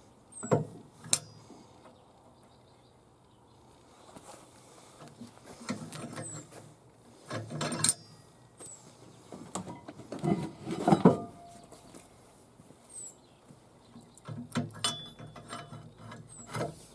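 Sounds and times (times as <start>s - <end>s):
metal tools clinking: 7.3s - 8.2s, 14.8s - 16.7s.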